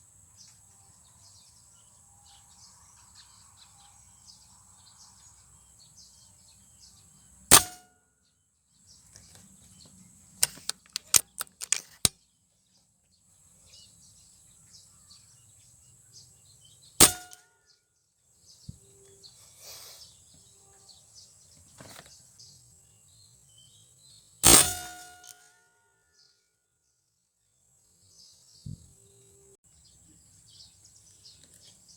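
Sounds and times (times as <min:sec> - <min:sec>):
air rifle shots: 0:07.5 - 0:07.8, 0:10.4 - 0:12.1, 0:17.0 - 0:17.4, 0:24.4 - 0:25.3
sharp clicks: 0:10.4 - 0:12.1
metallic ring: 0:17.0 - 0:17.4, 0:24.4 - 0:25.5.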